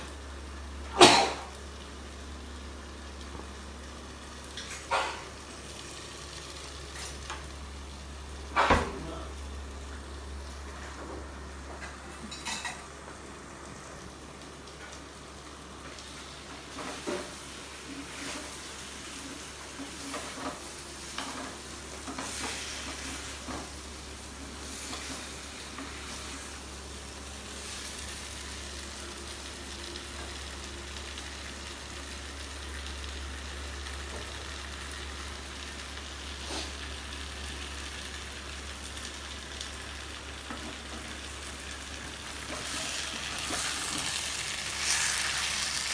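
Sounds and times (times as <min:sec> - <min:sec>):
chicken sizzling in a pot: 0:00.0 - 0:45.9.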